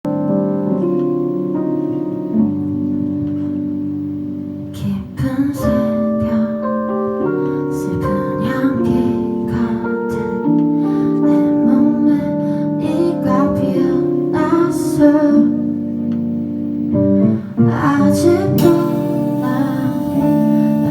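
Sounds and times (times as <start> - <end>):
keyboard chords: 0.0 - 20.9
strummed guitar: 18.6 - 20.9.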